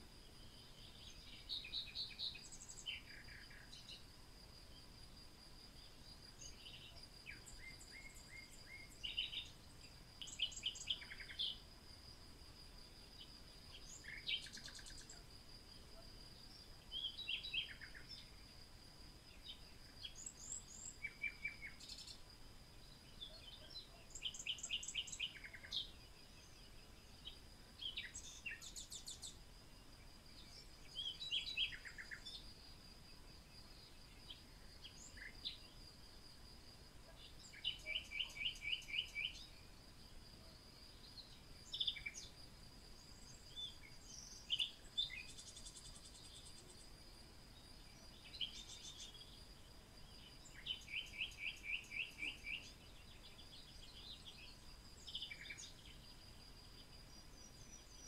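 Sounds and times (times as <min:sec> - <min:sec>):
birds chirping and trilling: 0:05.8 - 0:11.6, 0:23.0 - 0:29.4, 0:30.4 - 0:32.5, 0:37.1 - 0:39.6, 0:50.1 - 0:56.1.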